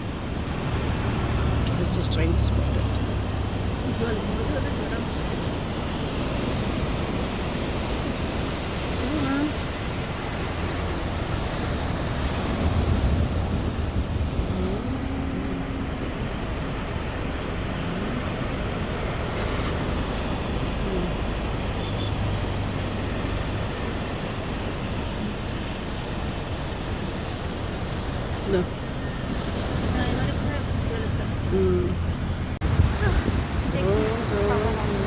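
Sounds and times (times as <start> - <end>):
sea water rushing around boat: 0.0 - 35.0
wind rushing: 11.0 - 15.5, 32.6 - 35.0.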